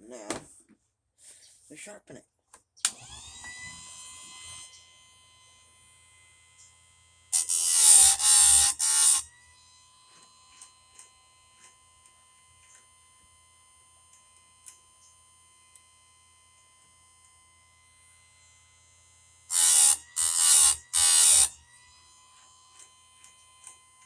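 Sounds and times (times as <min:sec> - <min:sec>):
chain grinder whine: 0:03.0 - 0:10.9, 0:17.7 - 0:24.0
grinding wheel on metal: 0:07.4 - 0:09.3, 0:19.5 - 0:21.6.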